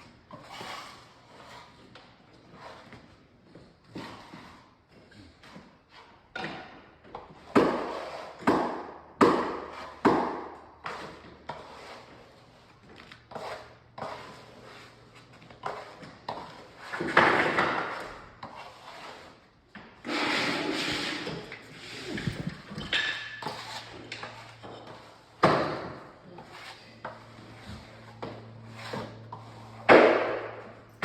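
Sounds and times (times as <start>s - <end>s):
steady rubbing noise: 26.3s - 30.8s.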